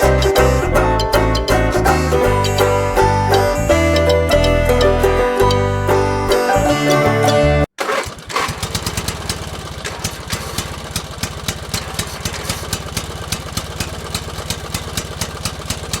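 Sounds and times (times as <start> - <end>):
small engine chugging: 7.8 - 16.0.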